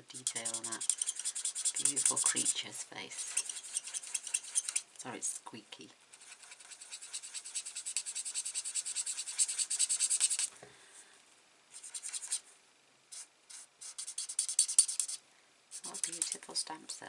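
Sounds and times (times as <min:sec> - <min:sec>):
marker squeaking on card: 0:00.1 - 0:02.5, 0:03.2 - 0:04.8, 0:06.2 - 0:10.5, 0:11.8 - 0:12.4, 0:13.5 - 0:15.2, 0:15.8 - 0:16.4.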